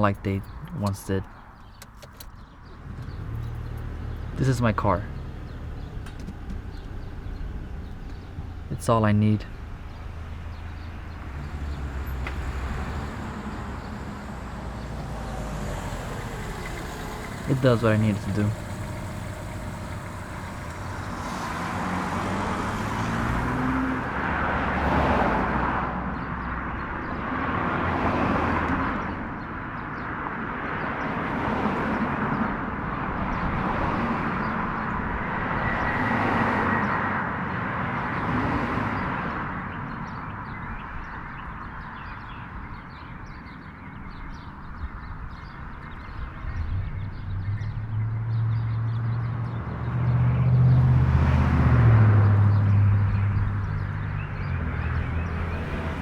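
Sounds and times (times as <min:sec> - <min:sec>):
tyre and road noise: 0:00.0 - 0:56.0
vehicle low hum: 0:02.2 - 0:25.5, 0:46.0 - 0:56.0.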